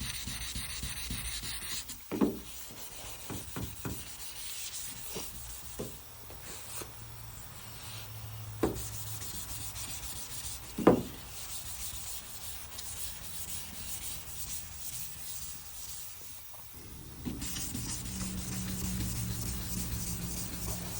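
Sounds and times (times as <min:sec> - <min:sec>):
sandpaper rubbing on metal: 0:08.7 - 0:16.4, 0:17.0 - 0:20.9
sharp knocks: 0:10.8 - 0:11.2.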